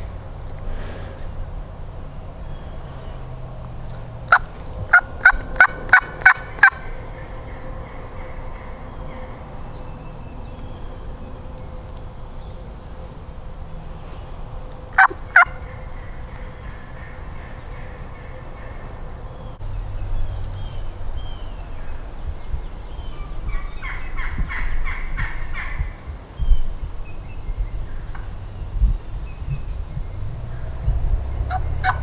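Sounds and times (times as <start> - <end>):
small songbirds chirping: 0.0 - 32.0
wild turkey calling: 2.4 - 19.6, 23.0 - 25.9, 31.5 - 32.0.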